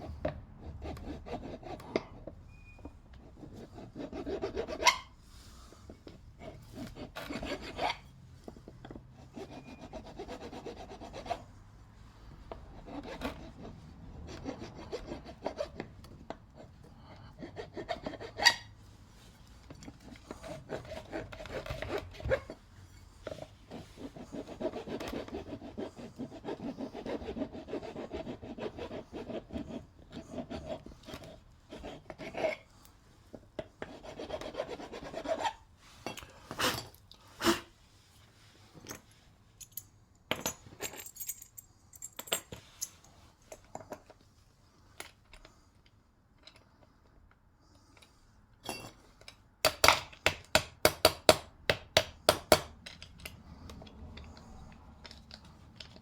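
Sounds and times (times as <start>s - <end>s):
metal file rasping on metal: 0.0s - 2.4s, 3.2s - 5.2s, 6.4s - 8.1s, 9.1s - 11.6s, 12.2s - 18.8s, 19.9s - 22.6s, 23.2s - 32.7s, 33.6s - 35.7s.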